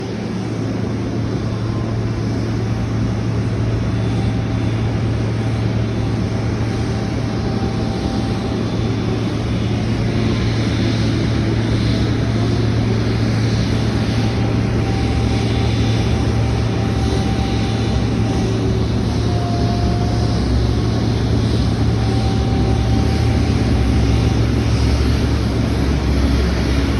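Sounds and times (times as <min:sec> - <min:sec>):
jet engines rumbling: 0:00.0 - 0:26.9.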